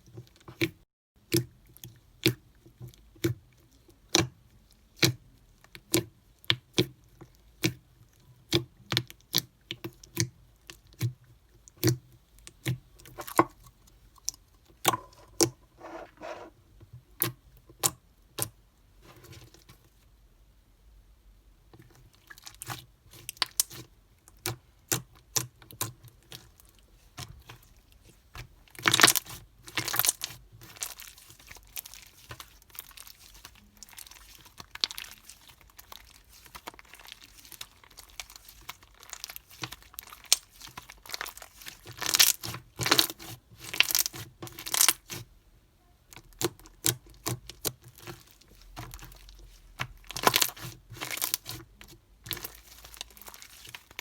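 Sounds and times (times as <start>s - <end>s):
slime squishing and crackling: 21.8s - 45.3s, 46.1s - 54.0s.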